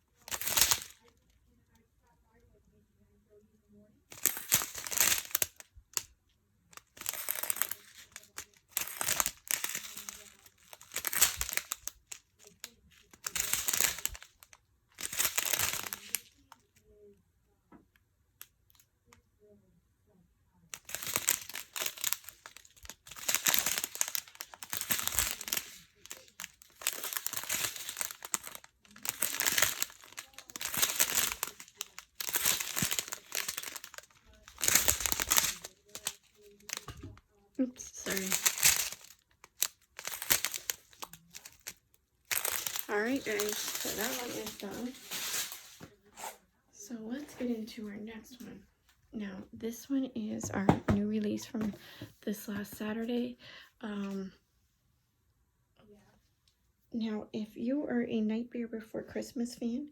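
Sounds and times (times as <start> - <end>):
plastic bags crinkling: 0.0 - 1.3, 4.1 - 6.1, 6.8 - 16.7, 20.7 - 46.3, 50.4 - 52.1.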